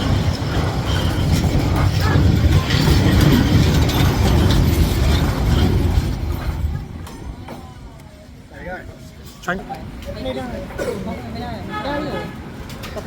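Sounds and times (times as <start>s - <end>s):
train wheel clacks: 0.0s - 8.1s
train passing rumble: 0.0s - 13.0s.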